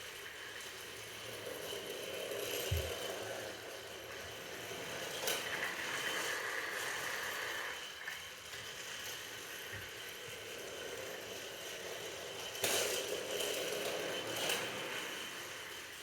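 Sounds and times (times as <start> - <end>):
train ride noise on board: 0.0 - 16.0.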